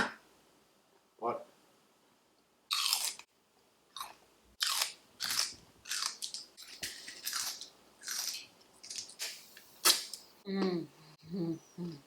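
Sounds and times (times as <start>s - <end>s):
person chewing crunchy food: 2.7s - 3.3s, 3.9s - 10.2s.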